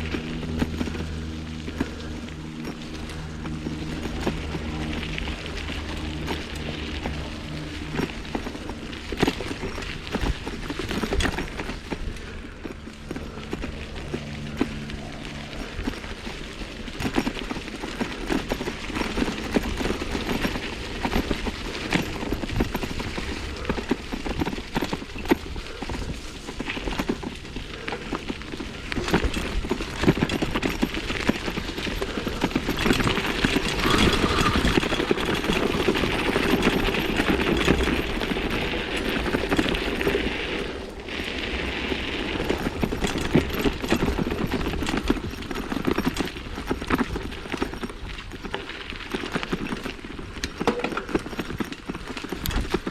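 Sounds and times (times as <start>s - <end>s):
bike frame rattling and clattering: 0.0s - 52.9s
tyre and wind rush: 33.0s - 45.3s.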